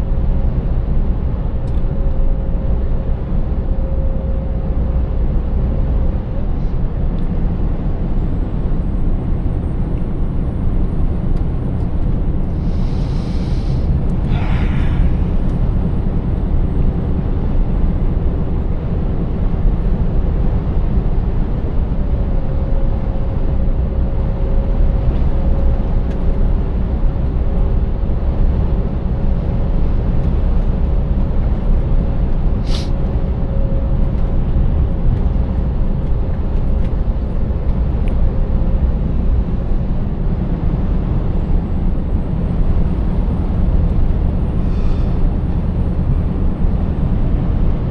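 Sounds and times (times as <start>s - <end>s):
truck engine rumble: 0.0s - 47.9s
air hiss: 12.6s - 15.4s, 32.6s - 33.0s.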